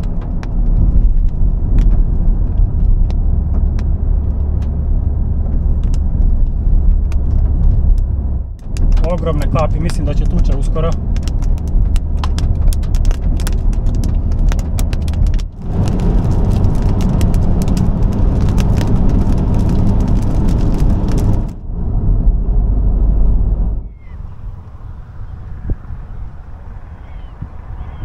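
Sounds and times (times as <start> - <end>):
raindrops tapping on car: 0.0 - 4.8, 5.4 - 21.6
car road noise rumble: 0.0 - 28.0.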